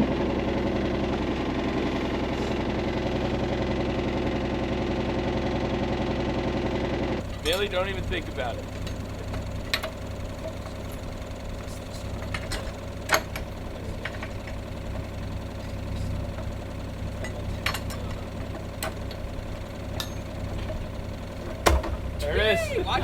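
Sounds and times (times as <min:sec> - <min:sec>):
skid loader engine idling: 0:00.0 - 0:23.0
sharp metallic knocks and clinks: 0:07.2 - 0:22.2.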